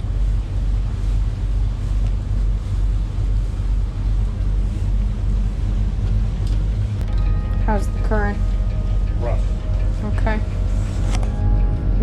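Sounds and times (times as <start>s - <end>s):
motorboat engines humming: 0.0s - 12.0s.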